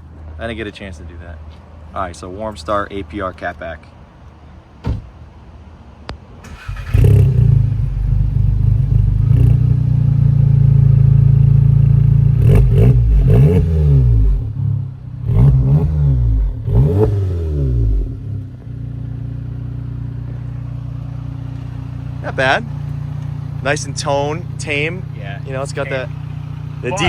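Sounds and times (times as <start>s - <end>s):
car engine starting and revving: 6.4s - 27.0s.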